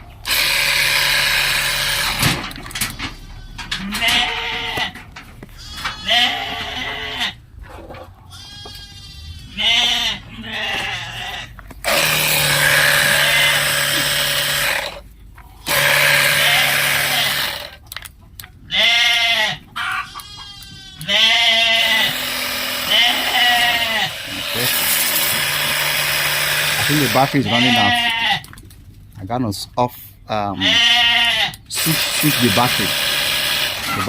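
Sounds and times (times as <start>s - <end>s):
goats bleating: 2.8s - 7.4s, 8.2s - 15.0s, 15.6s - 17.7s, 18.6s - 28.6s, 30.5s - 32.9s
sprayer hissing: 31.8s - 33.9s.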